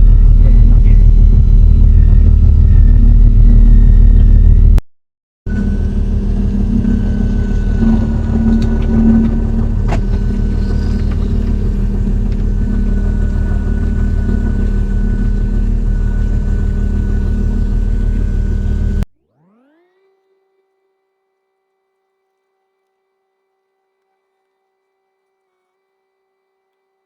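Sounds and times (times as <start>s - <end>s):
boat engine humming: 0.0s - 4.8s, 5.5s - 19.0s
thin steady whine: 0.0s - 4.8s, 5.5s - 25.4s.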